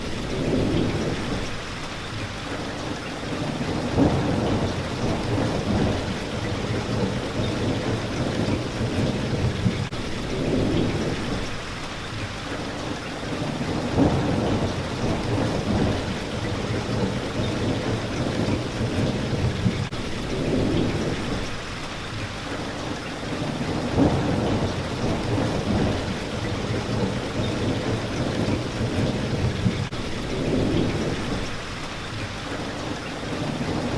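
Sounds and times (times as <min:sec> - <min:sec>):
rain on a window pane: 0:00.0 - 0:33.9
thunder rumbling: 0:00.2 - 0:01.6, 0:03.2 - 0:11.6, 0:13.3 - 0:21.6, 0:23.2 - 0:31.6, 0:33.2 - 0:33.9.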